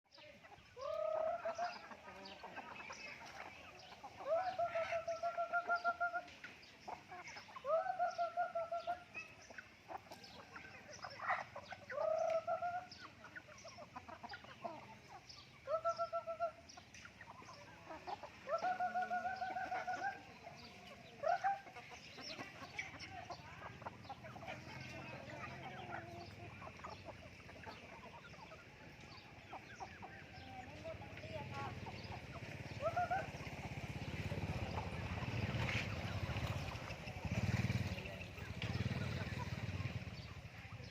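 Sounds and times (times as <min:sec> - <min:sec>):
chickens calling: 0:00.1 - 0:40.9
chickens clucking: 0:00.1 - 0:40.9.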